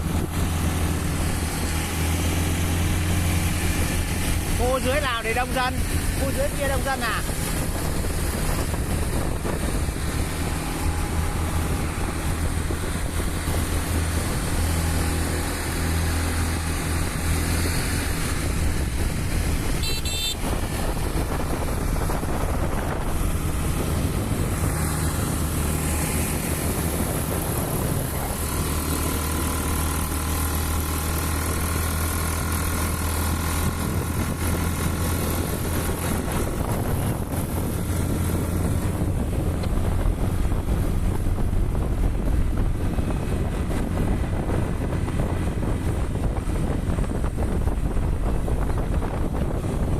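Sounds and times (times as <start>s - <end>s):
motorbike engine droning: 0.0s - 49.9s
rushing road and air noise: 0.0s - 49.9s.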